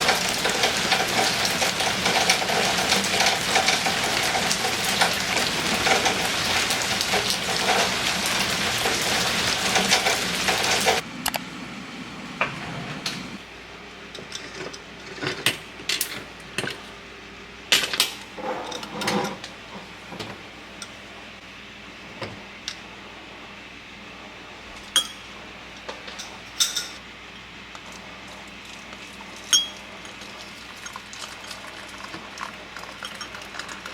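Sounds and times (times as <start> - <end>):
steady rain: 0.0 - 13.4
dishes and utensils clinking: 25.9 - 27.0, 29.4 - 30.2.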